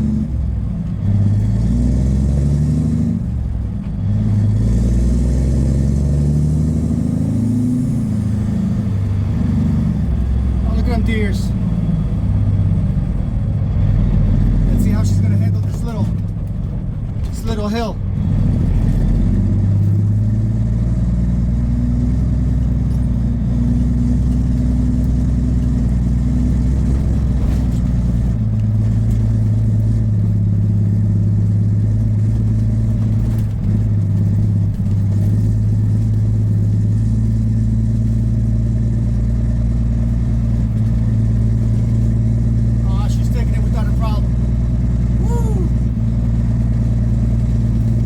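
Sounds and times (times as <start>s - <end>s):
diesel truck engine under load: 0.0s - 48.0s.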